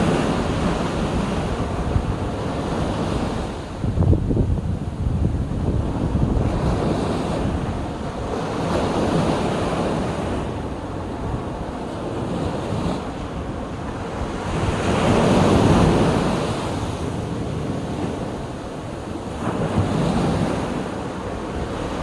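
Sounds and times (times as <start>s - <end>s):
wind buffeting microphone: 0.0s - 22.0s
sea waves washing onto shore: 4.6s - 22.0s.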